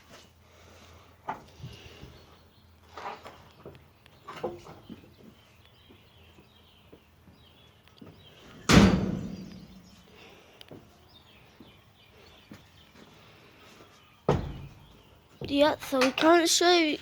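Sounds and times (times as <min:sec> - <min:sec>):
wooden coop door banging: 0:08.7 - 0:09.5, 0:14.3 - 0:14.8.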